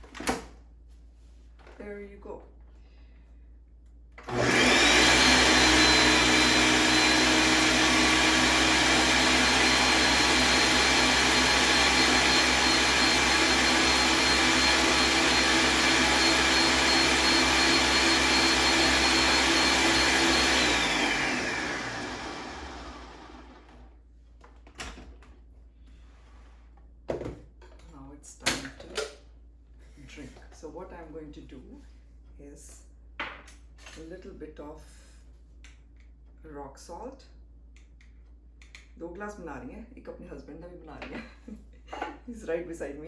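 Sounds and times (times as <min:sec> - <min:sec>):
electric blender motor whine: 0:04.2 - 0:23.9.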